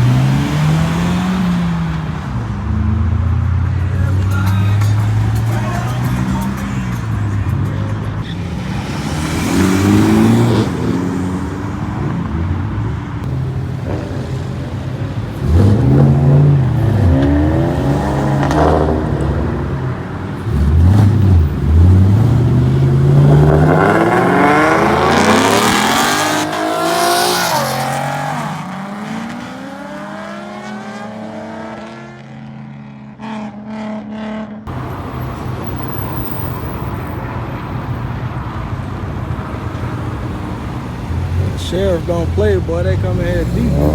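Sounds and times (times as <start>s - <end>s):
cars accelerating hard: 0.0s - 43.9s.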